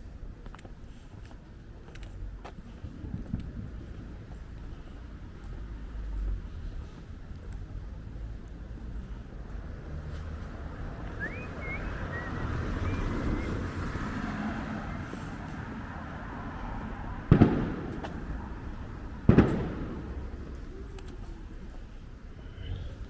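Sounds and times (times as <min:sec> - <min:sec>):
street noise: 0:00.0 - 0:23.0
firework bangs echoing: 0:17.2 - 0:20.6.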